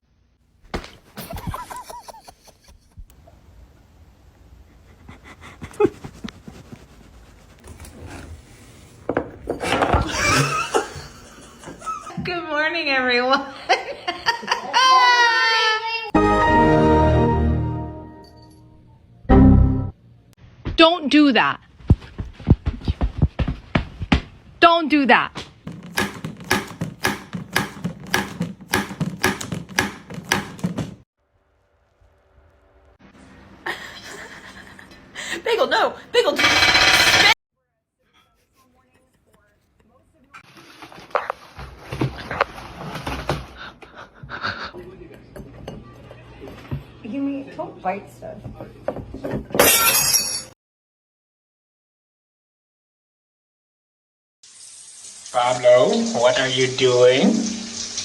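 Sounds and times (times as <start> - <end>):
clattering and rubbing: 5.7 - 11.8
hard objects knocking: 25.7 - 31.0.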